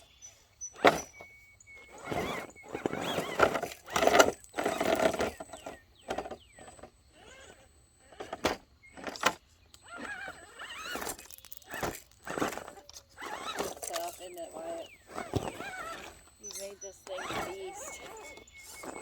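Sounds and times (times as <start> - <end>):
electric motor whining: 0.0 - 19.0
truck knocking on rocks: 15.1 - 16.2.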